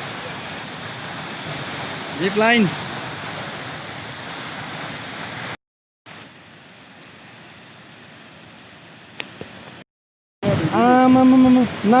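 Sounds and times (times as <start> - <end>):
waterfall rushing: 0.0 - 6.3, 10.4 - 12.0.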